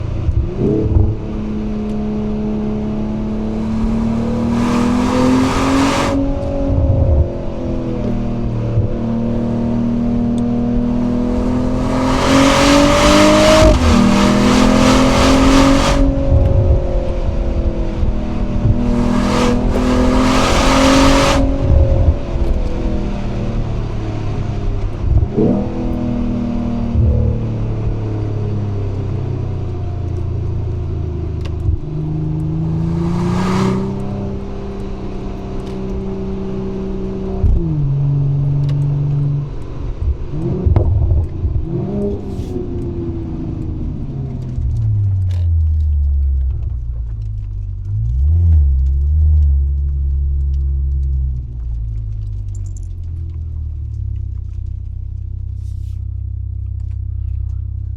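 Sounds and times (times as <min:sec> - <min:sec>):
car engine accelerating: 0:00.0 - 0:57.9
exhaust cracks: 0:10.2 - 0:57.9.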